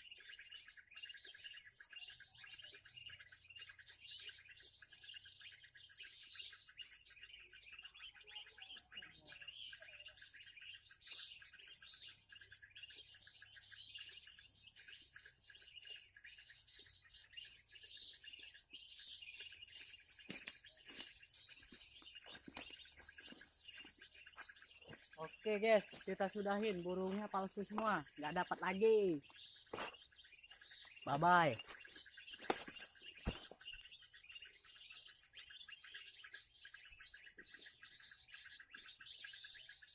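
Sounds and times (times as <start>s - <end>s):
small birds chirping and trilling: 0.0s - 39.9s
sharp clicks: 20.3s - 21.1s.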